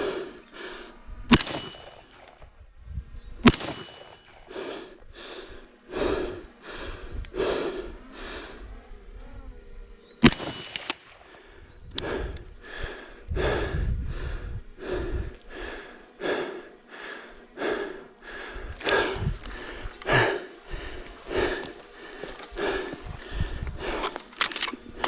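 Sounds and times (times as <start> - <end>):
person panting hard: 0.0 - 2.4, 3.5 - 8.8, 10.3 - 25.0.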